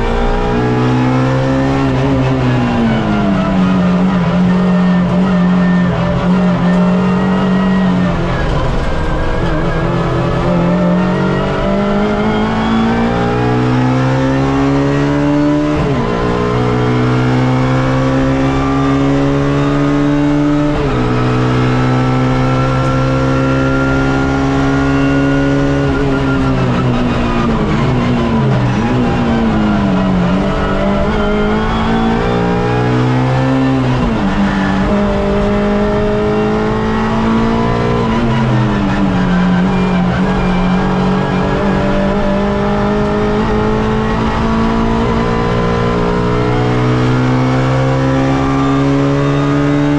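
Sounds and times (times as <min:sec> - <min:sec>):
race car engine accelerating: 0:00.0 - 0:49.9.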